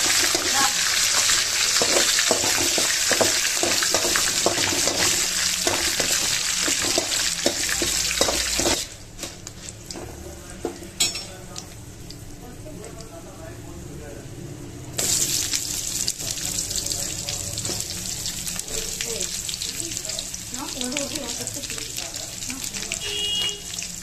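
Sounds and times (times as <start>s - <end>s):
metal spatula scraping a pan: 0.0s - 9.8s
hot oil sizzling: 0.0s - 24.0s.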